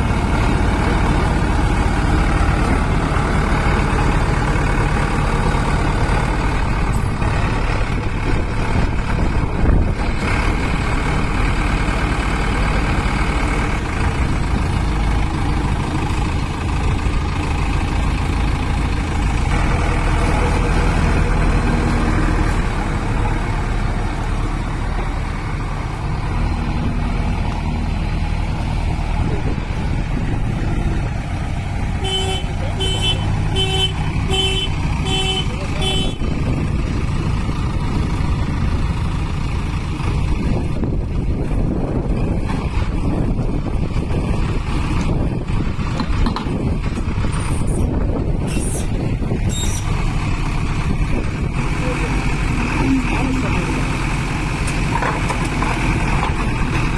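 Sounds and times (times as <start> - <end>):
diesel engine running: 0.0 - 56.9
high squeaks: 49.5 - 50.0.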